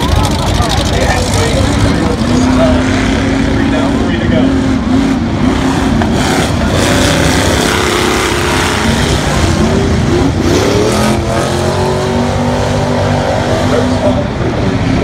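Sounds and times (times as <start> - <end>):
car engines revving loudly: 0.0 - 15.0.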